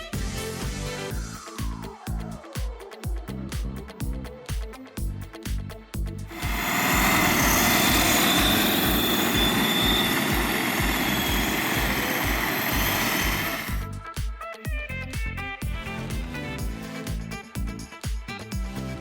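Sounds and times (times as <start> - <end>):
background music with beat: 0.0 - 19.0
radio-controlled car rushing noise: 6.3 - 13.8.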